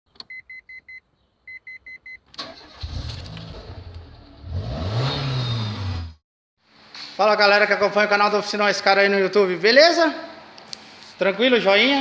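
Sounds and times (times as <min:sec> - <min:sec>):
car engine starting and revving: 0:02.4 - 0:06.2.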